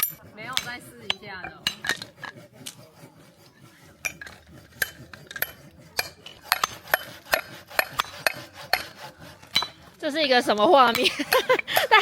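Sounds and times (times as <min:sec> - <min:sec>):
metal wedge struck into firewood: 0:00.0 - 0:02.4, 0:04.0 - 0:09.9.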